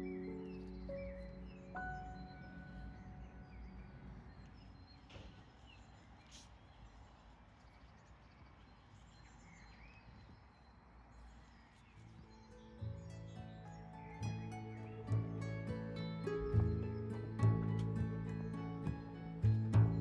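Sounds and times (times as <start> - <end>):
background music: 0.0 - 4.6, 12.8 - 20.0
bird chirps: 0.0 - 20.0.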